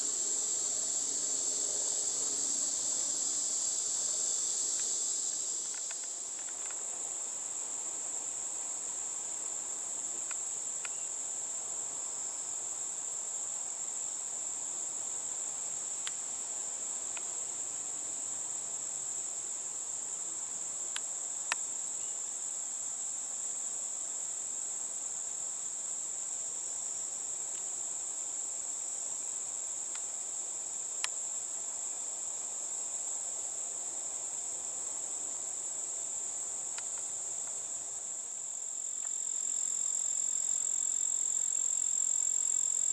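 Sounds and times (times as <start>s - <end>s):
crickets trilling: 0.0s - 42.9s.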